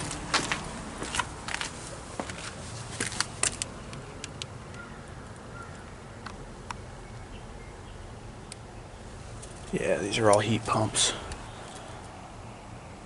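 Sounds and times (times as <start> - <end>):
crunching footsteps: 0.0 - 3.8.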